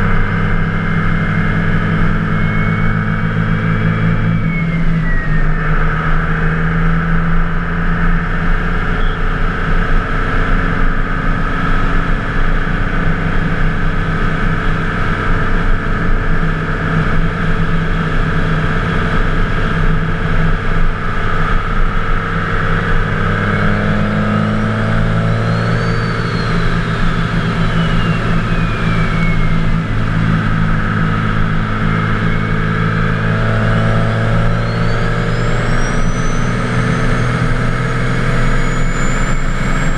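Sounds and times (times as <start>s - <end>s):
diesel engine drone: 0.0s - 39.9s
turbo whistle: 0.1s - 6.4s, 8.9s - 9.4s, 22.2s - 39.9s.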